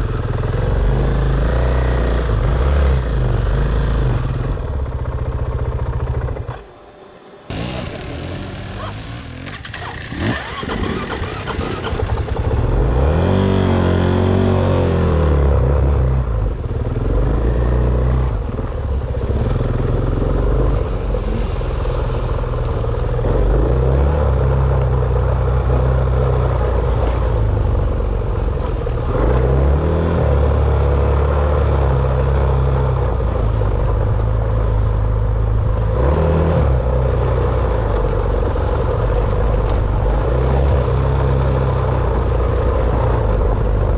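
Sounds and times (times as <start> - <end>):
dirt bike engine revving: 7.5 - 18.5.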